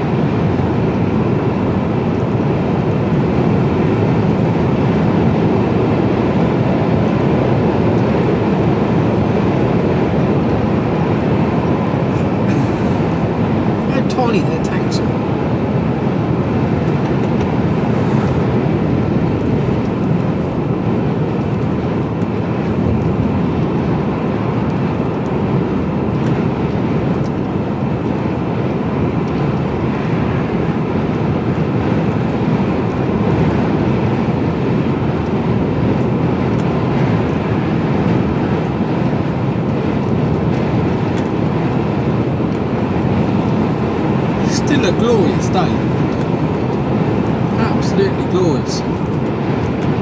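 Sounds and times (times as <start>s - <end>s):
lorry engine: 44.4s - 50.0s.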